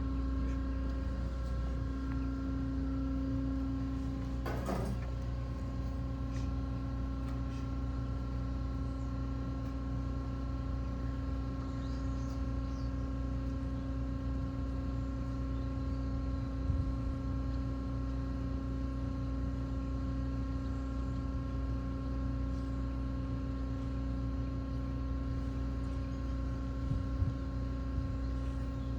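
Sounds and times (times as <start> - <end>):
steady mechanical hum: 0.0 - 28.9.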